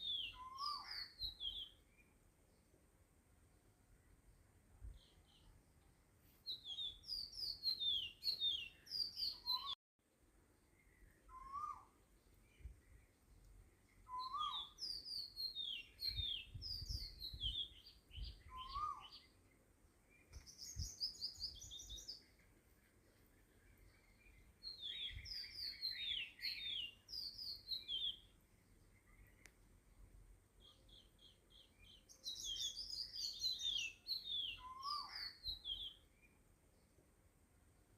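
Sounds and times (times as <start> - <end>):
small birds chirping: 0.0 - 3.0, 3.7 - 9.8, 10.5 - 37.3
lower rising bird calls: 6.4 - 9.8, 10.8 - 13.0, 14.0 - 19.4, 30.6 - 36.1.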